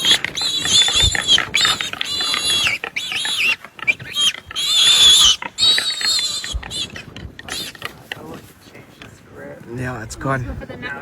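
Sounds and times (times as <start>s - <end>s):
piglet squealing: 0.0s - 8.0s.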